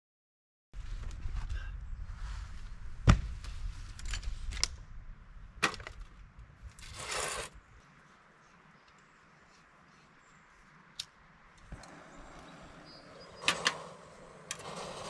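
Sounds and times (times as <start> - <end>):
low rumble: 0.8 - 6.8
scraping rustle: 5.8 - 8.2, 13.2 - 15.0.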